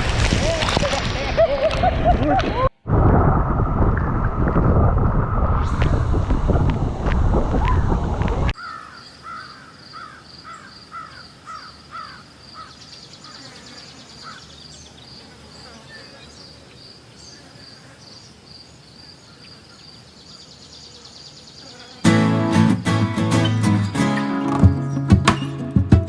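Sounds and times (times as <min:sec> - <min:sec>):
insects chirping: 0:08.6 - 0:22.1.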